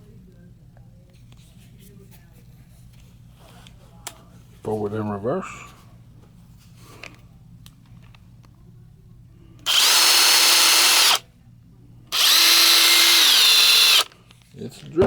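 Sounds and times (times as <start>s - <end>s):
impact wrench motor whine: 9.7s - 11.2s, 12.1s - 14.2s.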